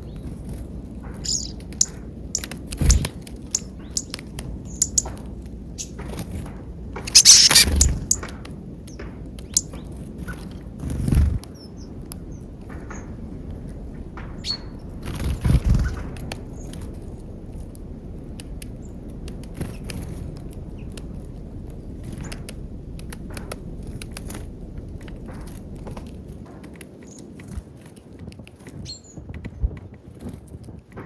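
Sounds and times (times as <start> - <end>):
birds pecking and tapping: 0.1 - 11.2, 11.9 - 28.0
short high bird chirps: 1.2 - 2.5, 3.6 - 5.1, 7.1 - 8.2.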